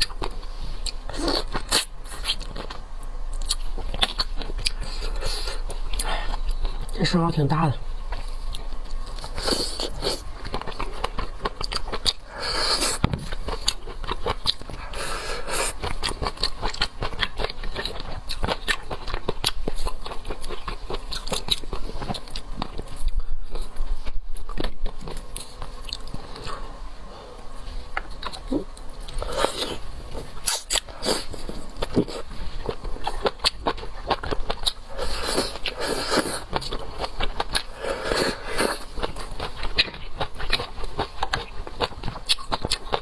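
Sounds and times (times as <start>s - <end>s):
person chewing wet mouth sounds: 0.0s - 7.0s, 8.1s - 23.8s, 28.0s - 43.0s.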